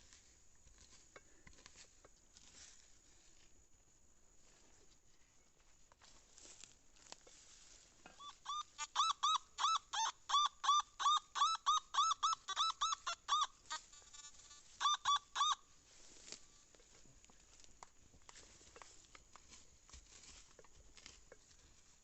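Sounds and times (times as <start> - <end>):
metal detector beeps: 8.2 - 15.7
metal detector buzzing tone: 8.3 - 15.6.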